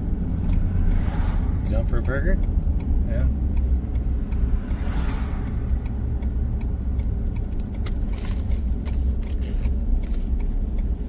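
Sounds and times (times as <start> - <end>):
light ticks and clicks: 0.3 - 11.0.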